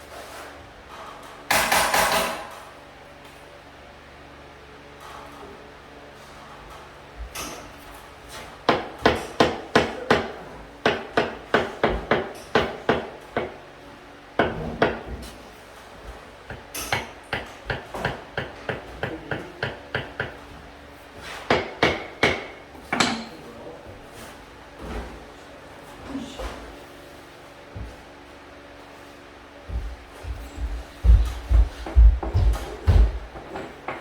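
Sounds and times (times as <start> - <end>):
hammer striking: 21.5 - 23.3.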